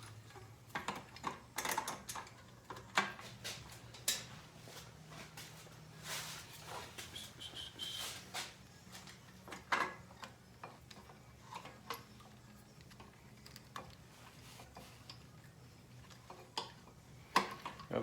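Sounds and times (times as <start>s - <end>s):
small parts clicking and tapping: 0.7s - 3.2s, 9.0s - 15.3s.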